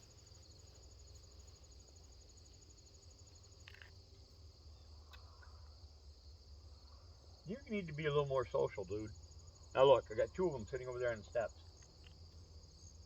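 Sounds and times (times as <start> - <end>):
high insect trill: 0.0 - 13.0.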